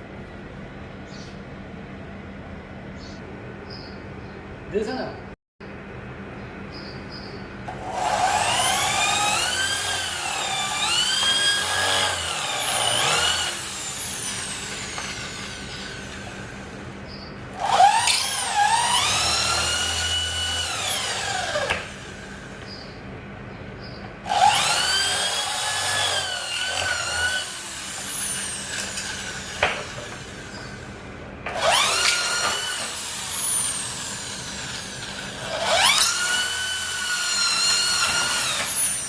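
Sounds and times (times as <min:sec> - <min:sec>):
power drill whining: 0:07.7 - 0:16.8, 0:17.5 - 0:22.6, 0:24.2 - 0:39.0.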